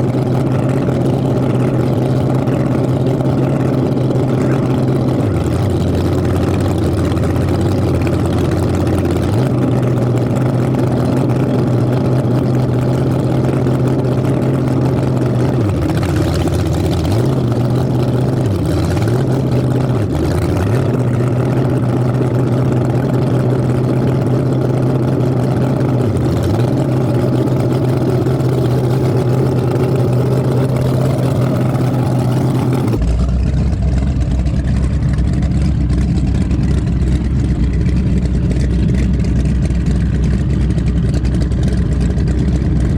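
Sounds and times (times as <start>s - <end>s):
powerboat engines running: 0.0s - 42.9s.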